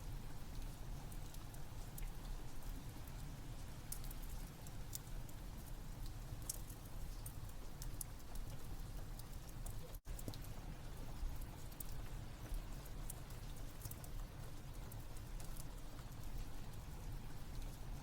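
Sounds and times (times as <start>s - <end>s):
rain: 0.0s - 18.0s
wood fire crackling and popping: 0.0s - 18.0s.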